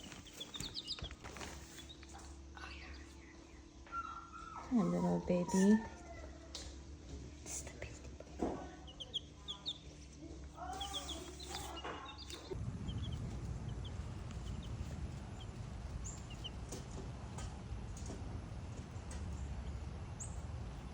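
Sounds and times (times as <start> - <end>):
baby chicks peeping: 0.0 - 20.9
low rumbling noise: 12.4 - 20.9.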